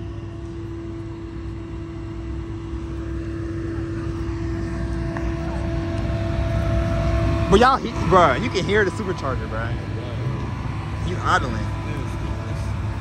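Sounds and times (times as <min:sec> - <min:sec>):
car engine idling: 0:00.0 - 0:13.0
steady droning whine: 0:00.0 - 0:13.0
man speaking: 0:07.5 - 0:10.4, 0:11.0 - 0:13.0.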